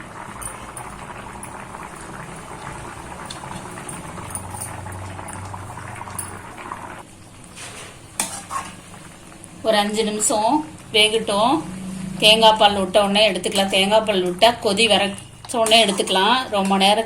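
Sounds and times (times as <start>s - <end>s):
gravy bubbling in a pan: 0.0s - 13.0s.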